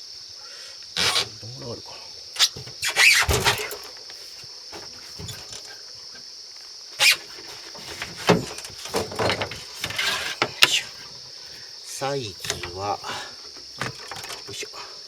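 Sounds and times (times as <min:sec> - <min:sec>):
high drone of insects: 0:00.0 - 0:15.0
knocks and rustles of fish handled: 0:02.4 - 0:06.2, 0:07.0 - 0:11.6, 0:12.4 - 0:14.7.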